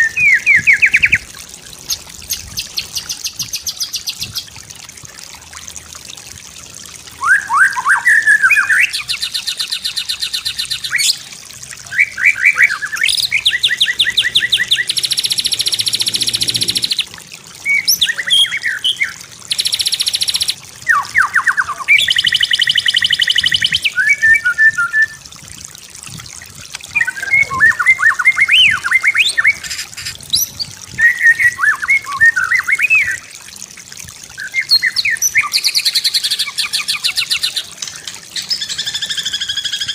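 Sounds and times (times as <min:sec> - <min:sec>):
bird singing whistles and trills: 0:00.0 - 0:01.3, 0:07.2 - 0:11.2, 0:11.8 - 0:25.2, 0:26.9 - 0:33.3, 0:34.4 - 0:37.7, 0:38.4 - 0:39.9.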